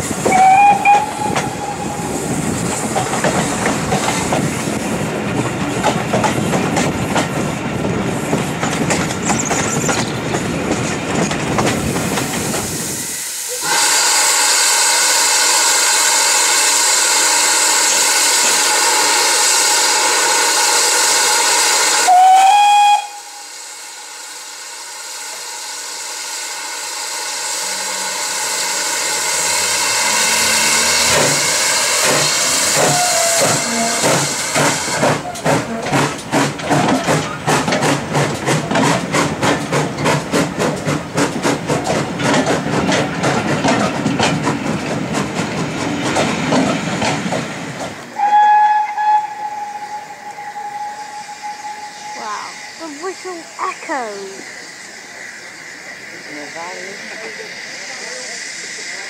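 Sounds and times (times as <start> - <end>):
steam hissing: 0.0 - 59.0
train running noise: 0.0 - 59.0
steam whistle blast: 0.3 - 2.2, 13.0 - 24.2, 32.6 - 34.3, 48.2 - 53.4.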